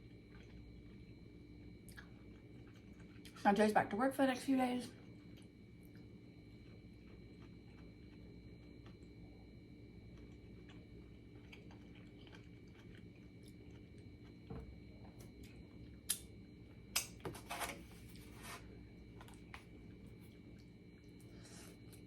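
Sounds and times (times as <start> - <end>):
person chewing: 0.3 - 1.0, 1.8 - 3.4, 10.2 - 14.4.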